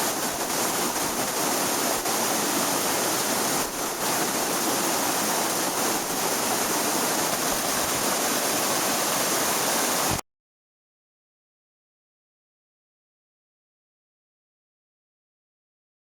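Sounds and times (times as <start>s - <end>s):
flowing water rushing: 0.0s - 10.2s.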